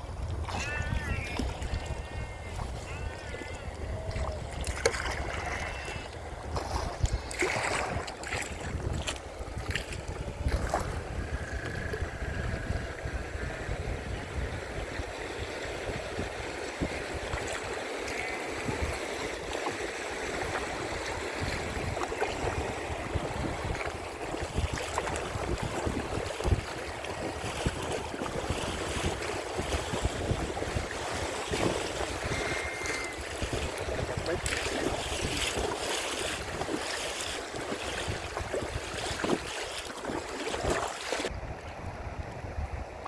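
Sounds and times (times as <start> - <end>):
wind buffeting microphone: 0.0 - 43.0
small water splashes: 0.2 - 12.0, 16.2 - 41.3
river water rushing and splashing: 4.1 - 11.0, 15.1 - 41.4.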